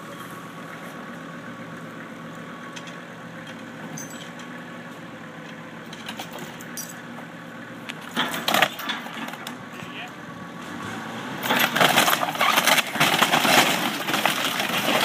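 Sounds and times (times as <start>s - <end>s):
tractor engine running: 0.0s - 15.0s
light metallic clinks and rattles: 3.9s - 4.6s, 5.9s - 7.1s.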